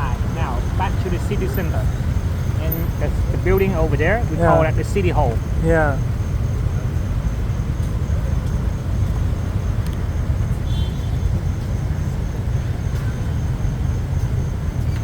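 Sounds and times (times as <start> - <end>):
road and traffic rumble: 0.0 - 15.0.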